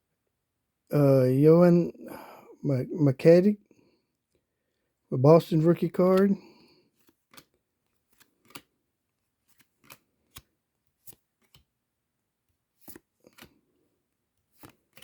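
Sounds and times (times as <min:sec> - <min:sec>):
cards clicking against cards: 0:07.0 - 0:08.7, 0:09.4 - 0:11.7, 0:12.8 - 0:13.7, 0:14.5 - 0:15.0.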